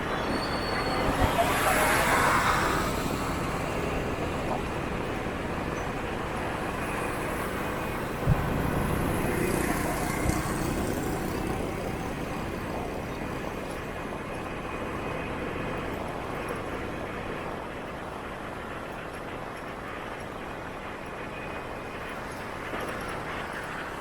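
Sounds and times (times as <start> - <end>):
city traffic engines: 0.0 - 24.0.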